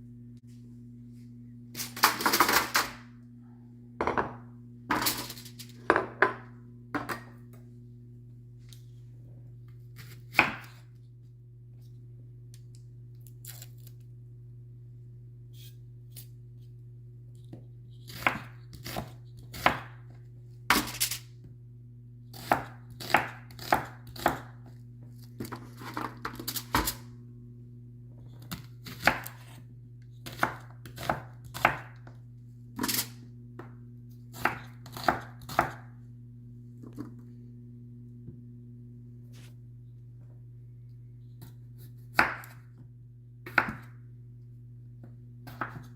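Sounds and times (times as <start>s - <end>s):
steady low hum: 0.0s - 45.9s
knife chopping on a board: 10.0s - 10.8s, 18.1s - 20.1s, 22.4s - 24.6s, 28.4s - 29.6s, 30.2s - 32.1s, 34.3s - 35.9s, 41.4s - 42.7s, 43.4s - 44.0s, 45.4s - 45.9s.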